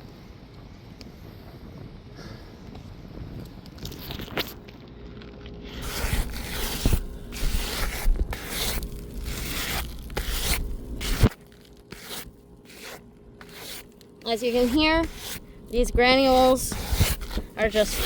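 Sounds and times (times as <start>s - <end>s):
scraping roof shingle: 5.7s - 18.0s.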